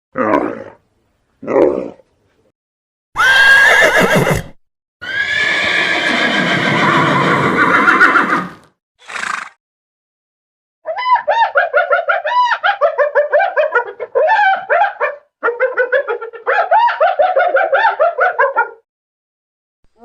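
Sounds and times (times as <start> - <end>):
horse neighing: 3.2 - 9.6.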